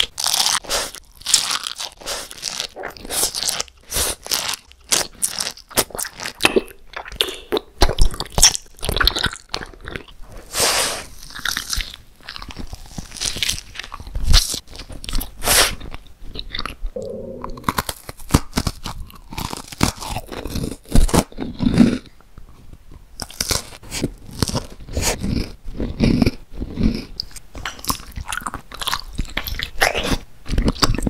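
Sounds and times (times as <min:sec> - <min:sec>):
crunchy chewing of snacks: 0:00.0 - 0:31.0
short hummed tone: 0:17.0 - 0:17.6.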